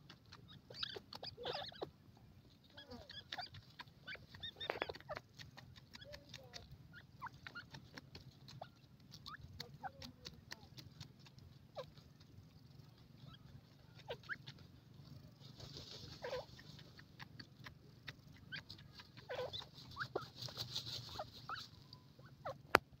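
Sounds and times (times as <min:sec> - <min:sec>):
high faint bird twittering: 0:00.0 - 0:10.0, 0:10.8 - 0:22.7
light ticks: 0:00.0 - 0:22.0
bird chirps and squeaks: 0:00.3 - 0:09.5, 0:12.6 - 0:14.6, 0:16.0 - 0:17.5, 0:18.2 - 0:22.7.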